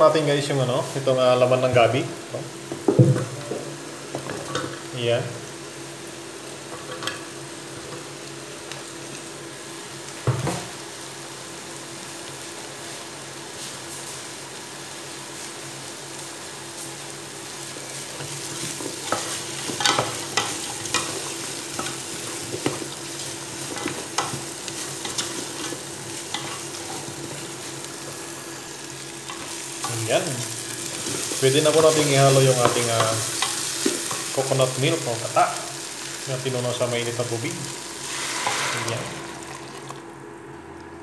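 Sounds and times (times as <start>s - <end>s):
food sizzling in oil: 0.0s - 40.2s
knock on a pot: 2.8s - 3.3s
wooden spatula scraping a pot: 38.0s - 39.2s.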